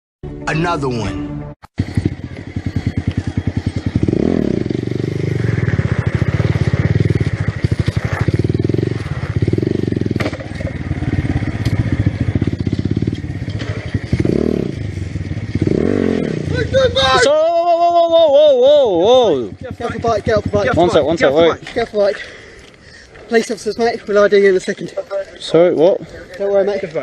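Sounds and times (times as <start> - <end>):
motorcycle engine revving: 1.8 - 22.1.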